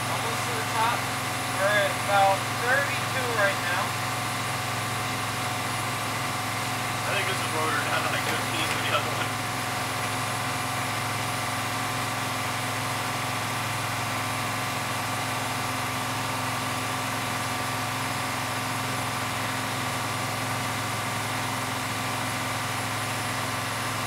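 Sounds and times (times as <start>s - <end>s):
bus diesel engine droning: 0.0s - 24.0s
steady whining tones: 4.7s - 10.7s.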